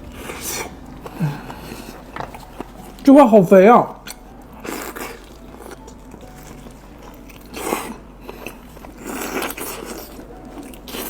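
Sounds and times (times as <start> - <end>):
wet mouth noises: 0.0 - 3.0
biting and chewing meat: 0.0 - 11.0.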